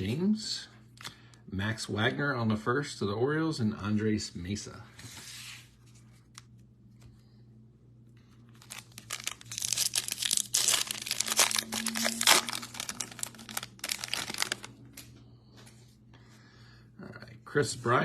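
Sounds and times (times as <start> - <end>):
foil wrapper tearing and crinkling: 8.5 - 14.8.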